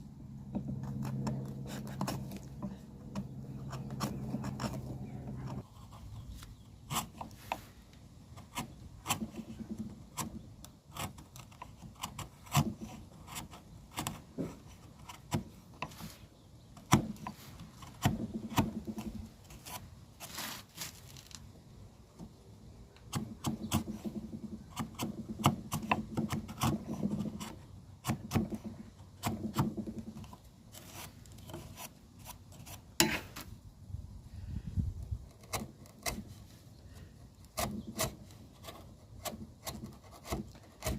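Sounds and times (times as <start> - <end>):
wood knocks and taps: 0.5 - 5.6
wood scraping and rasping: 0.5 - 21.4, 23.1 - 33.5, 35.2 - 40.9.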